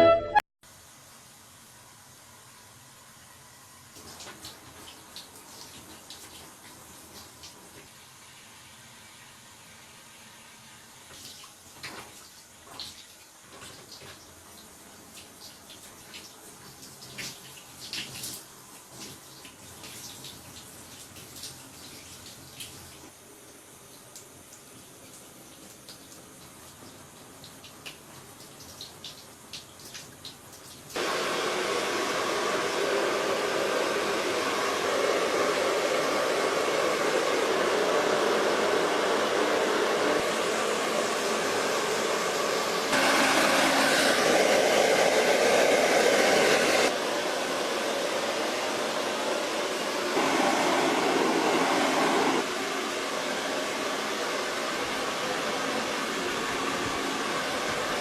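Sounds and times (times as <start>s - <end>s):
blower-like rushing noise: 31.0s - 58.0s.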